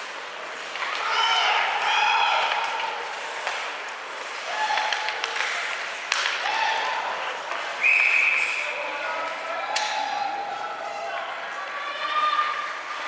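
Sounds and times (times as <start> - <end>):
spectators shouting: 0.8 - 3.4, 4.3 - 13.0
spectators clapping: 4.6 - 6.6.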